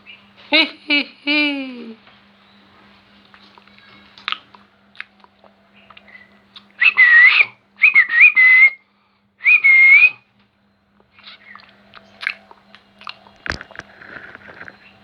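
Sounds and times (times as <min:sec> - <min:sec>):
parrot whistling calls: 0:06.0 - 0:08.8, 0:09.4 - 0:10.2.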